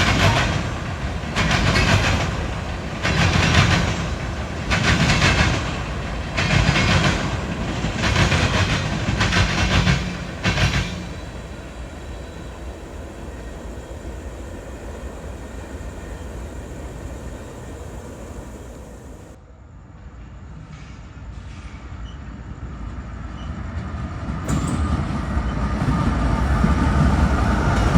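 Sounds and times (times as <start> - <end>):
train rumble: 0.0 - 19.4, 23.7 - 27.9
train wheels clattering over rail joints: 0.0 - 19.4.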